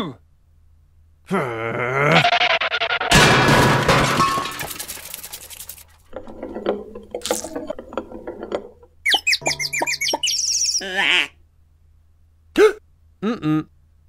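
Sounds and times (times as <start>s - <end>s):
cartoon crash: 2.1s - 4.8s
cartoon rising bird tweets: 9.1s - 11.3s.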